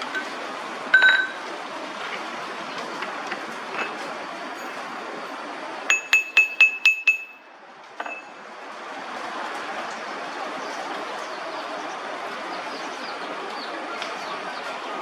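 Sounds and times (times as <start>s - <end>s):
metal clinking on metal: 1.0s - 1.4s, 4.6s - 4.8s, 5.9s - 7.4s.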